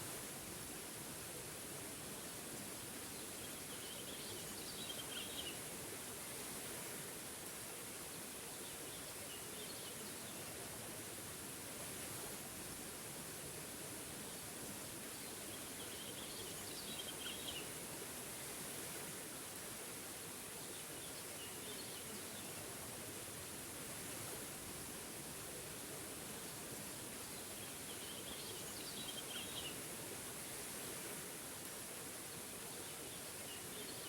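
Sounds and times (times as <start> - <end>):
small waterfall rushing: 0.0 - 34.0.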